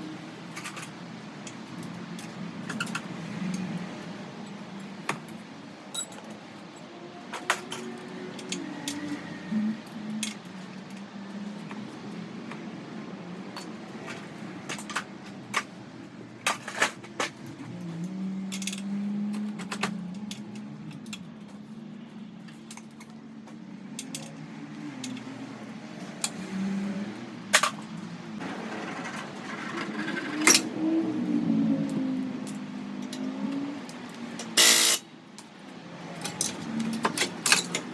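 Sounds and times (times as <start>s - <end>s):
metallic clinks of tools: 5.9s - 6.4s, 34.4s - 35.0s.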